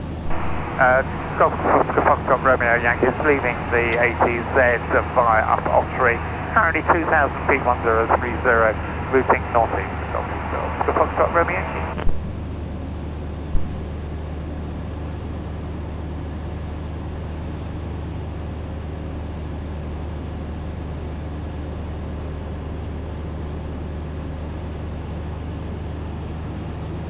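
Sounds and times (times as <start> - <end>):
light aircraft engine droning: 0.0 - 27.0.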